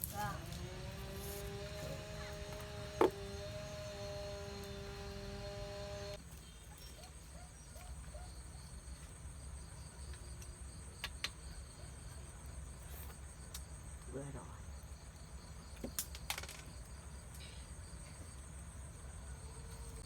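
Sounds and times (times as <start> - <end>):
steady low hum: 0.0 - 6.2.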